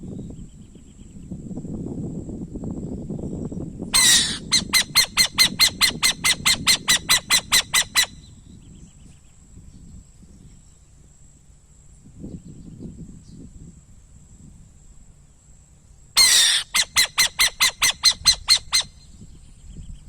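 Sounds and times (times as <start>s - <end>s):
owl screeching: 4.0s - 8.2s, 16.2s - 19.0s
rapid high-pitched owl notes: 4.0s - 8.2s, 16.2s - 19.0s.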